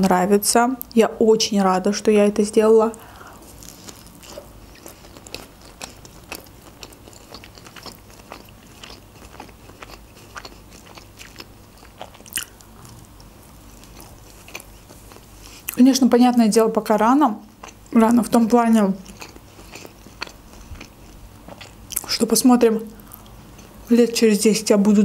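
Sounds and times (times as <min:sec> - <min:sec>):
chewing with mouth clicks: 0:03.6 - 0:15.8, 0:17.5 - 0:18.0, 0:19.0 - 0:22.1.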